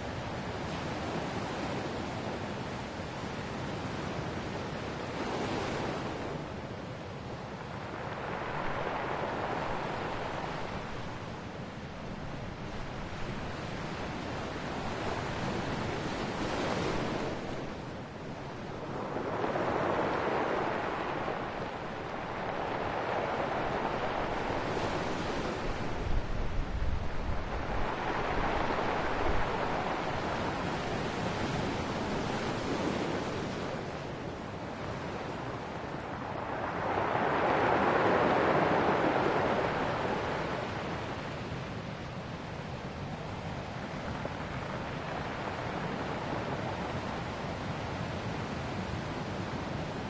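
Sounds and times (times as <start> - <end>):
ocean waves breaking: 3.8 - 50.0
wind buffeting microphone: 12.1 - 41.6.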